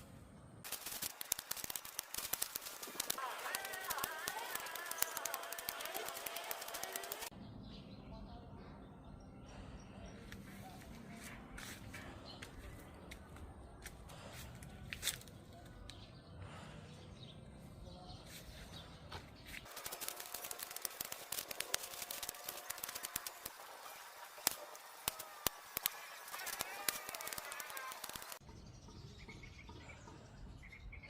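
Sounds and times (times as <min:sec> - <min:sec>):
dry leaves crackling: 0:00.6 - 0:07.3, 0:19.6 - 0:28.4
stems being cut clicking: 0:00.7 - 0:07.3, 0:19.6 - 0:28.4.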